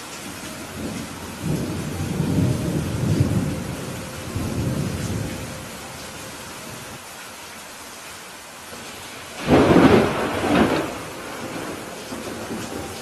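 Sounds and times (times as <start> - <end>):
steady rain hissing: 0.0 - 13.0
thunder rumbling: 0.7 - 7.0, 9.4 - 13.0.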